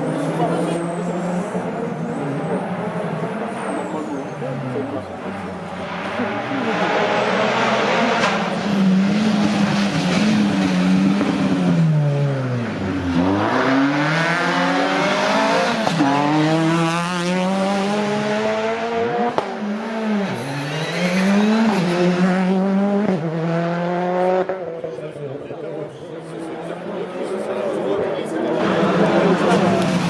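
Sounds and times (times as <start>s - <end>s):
rally car engine revving: 0.0s - 30.0s.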